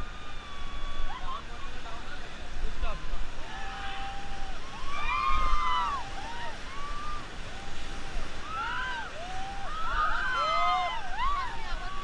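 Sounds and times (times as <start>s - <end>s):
river water rushing: 0.0s - 12.0s
people shouting: 8.4s - 12.0s.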